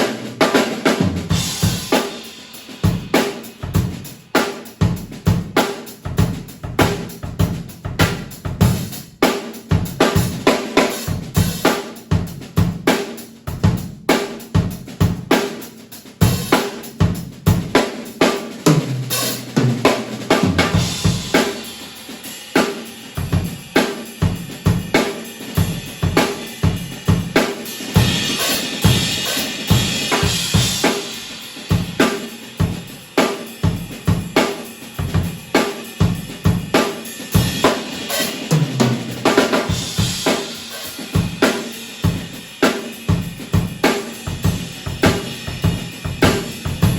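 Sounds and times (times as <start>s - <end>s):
washing cymbals: 0.0s - 46.9s.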